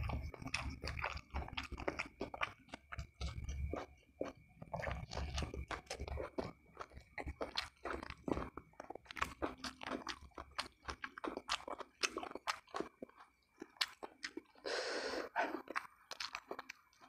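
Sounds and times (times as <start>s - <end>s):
food crunching: 0.0s - 14.6s, 15.3s - 17.0s
person chewing food: 0.0s - 17.0s.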